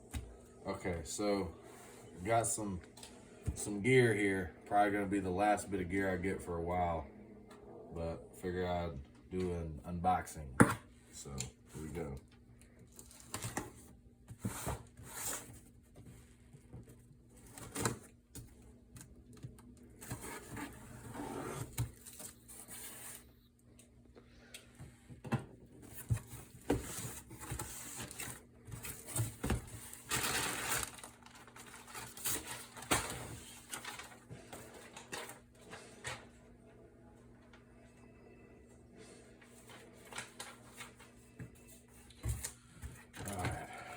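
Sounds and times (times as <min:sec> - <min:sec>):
cardboard rustling and scraping: 0:13.0 - 0:16.4, 0:20.0 - 0:23.4, 0:25.8 - 0:36.1.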